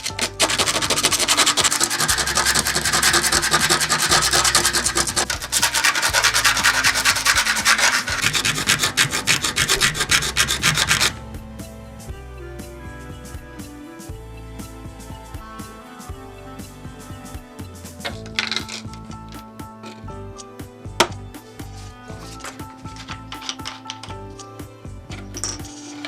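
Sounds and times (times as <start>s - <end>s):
rough scraping strokes: 0.0s - 11.2s.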